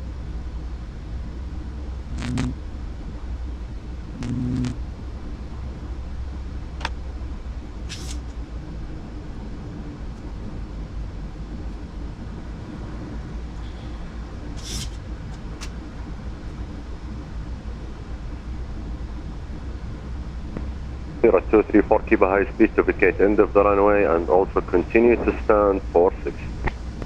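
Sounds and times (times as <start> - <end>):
cockpit low rumble: 0.0 - 27.0
short hisses: 7.9 - 8.2, 14.6 - 15.0.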